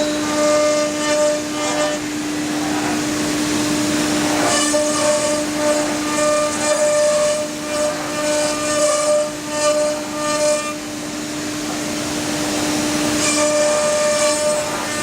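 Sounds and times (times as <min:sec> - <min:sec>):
router spindle whining: 0:00.0 - 0:10.8, 0:11.6 - 0:15.0.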